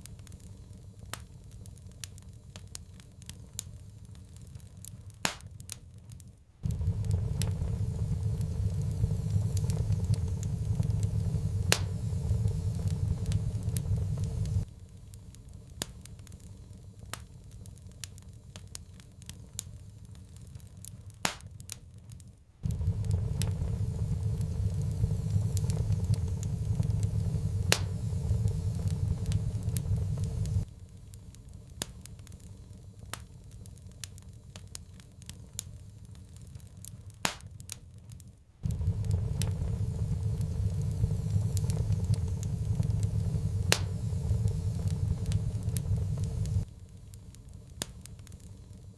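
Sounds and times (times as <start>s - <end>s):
wood fire crackling: 0.0s - 48.9s
low rumble: 6.6s - 15.0s, 22.6s - 30.8s, 38.6s - 47.1s.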